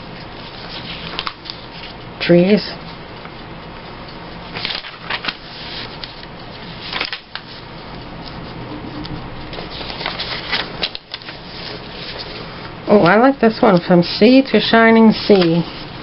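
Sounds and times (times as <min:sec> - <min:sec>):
paper rustling and sliding: 0:00.4 - 0:02.0, 0:04.5 - 0:07.7, 0:09.5 - 0:13.9, 0:14.6 - 0:16.0.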